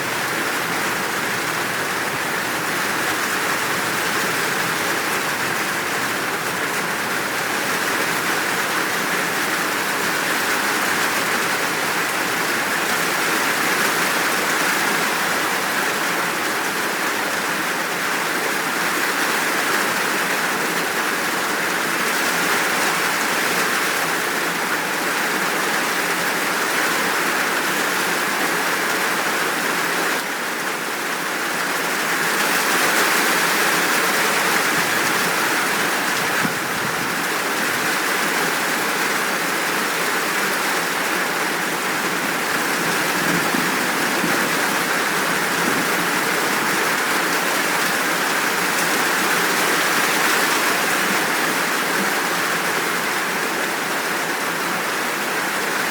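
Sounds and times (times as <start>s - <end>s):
heavy rain downpour: 0.0s - 55.9s.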